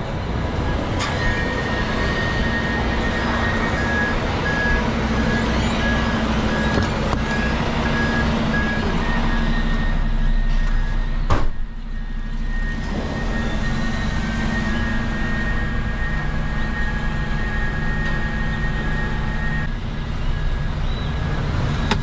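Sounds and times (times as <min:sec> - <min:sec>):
truck engine running: 0:00.0 - 0:22.0
reversing alarm beeping: 0:00.4 - 0:22.0.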